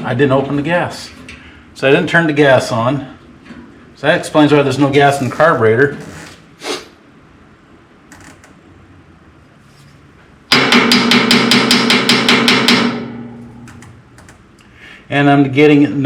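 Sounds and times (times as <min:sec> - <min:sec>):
rapid metallic tapping: 0:10.5 - 0:14.4.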